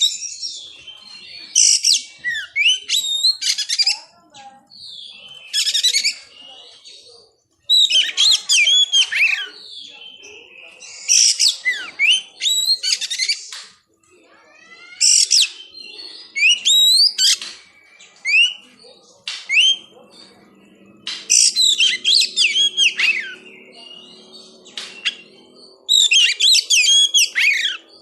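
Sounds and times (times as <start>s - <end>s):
bird singing whistled notes: 0.0s - 4.1s, 4.7s - 7.1s, 7.7s - 13.6s, 14.7s - 18.8s, 19.5s - 28.0s
bird chattering: 0.0s - 7.0s, 7.7s - 13.6s, 14.6s - 28.0s.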